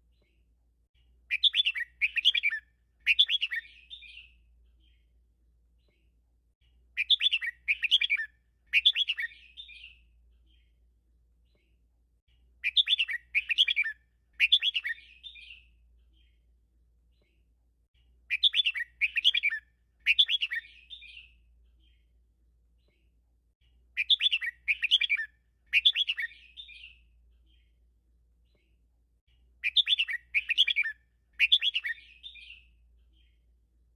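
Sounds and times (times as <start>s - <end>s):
bulbul singing: 1.3s - 5.0s, 7.0s - 10.7s, 12.6s - 16.4s, 18.3s - 22.0s, 24.0s - 27.8s, 29.6s - 33.4s.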